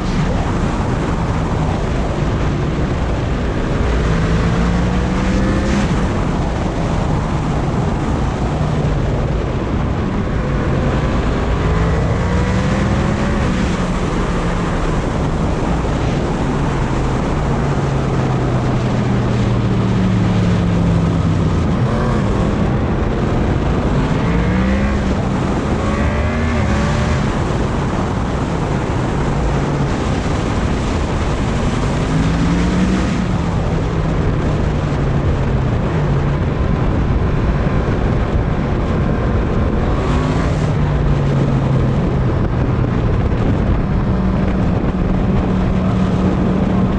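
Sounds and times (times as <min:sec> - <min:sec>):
wind noise on microphone: 0:00.0 - 0:46.9
motorcycle engine revving: 0:03.4 - 0:07.2, 0:08.4 - 0:35.5.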